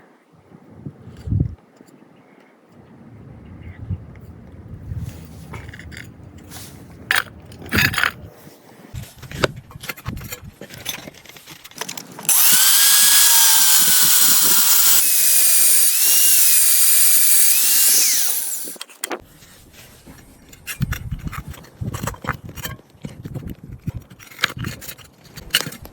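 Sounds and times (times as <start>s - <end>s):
power tool whining: 12.3s - 18.9s.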